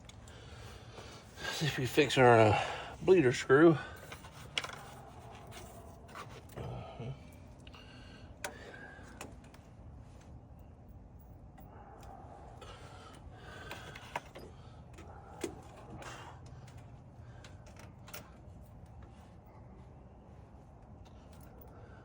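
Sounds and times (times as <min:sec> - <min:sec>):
low steady hum: 0:00.0 - 0:22.0
hand tools clicking and scraping: 0:03.9 - 0:07.0, 0:11.6 - 0:19.2.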